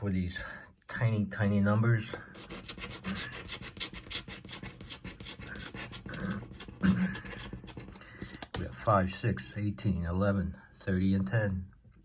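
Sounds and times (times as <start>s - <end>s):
scratching lottery ticket: 2.3s - 8.9s.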